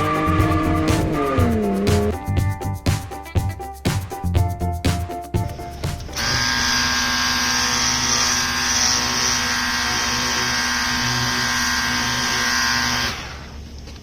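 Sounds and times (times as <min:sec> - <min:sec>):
pressure washer motor hum: 0:06.2 - 0:13.6.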